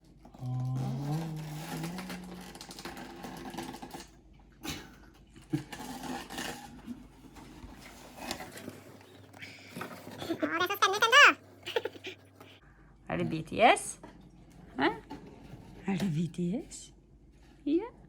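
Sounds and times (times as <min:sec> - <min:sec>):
box and packaging rattling: 0:00.0 - 0:04.2, 0:05.4 - 0:12.1.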